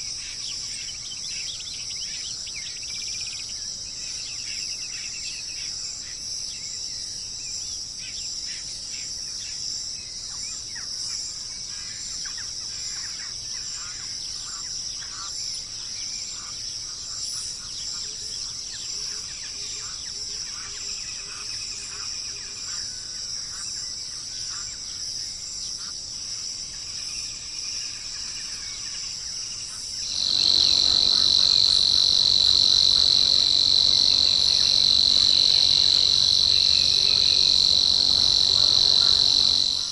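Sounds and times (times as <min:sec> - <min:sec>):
insect trill: 0:30.0 - 0:39.9
bird chirps: 0:30.1 - 0:39.9.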